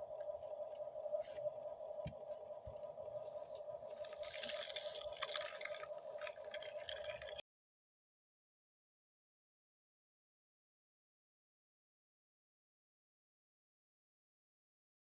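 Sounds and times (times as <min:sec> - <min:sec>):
dirt scraping and trickling: 0:04.0 - 0:07.4.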